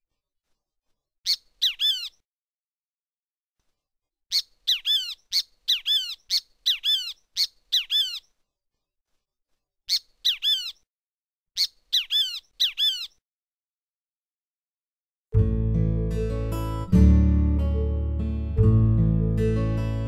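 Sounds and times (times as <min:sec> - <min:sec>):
bird calling shrill notes: 0:01.3 - 0:02.2, 0:04.3 - 0:08.3, 0:09.9 - 0:10.8, 0:11.6 - 0:13.2.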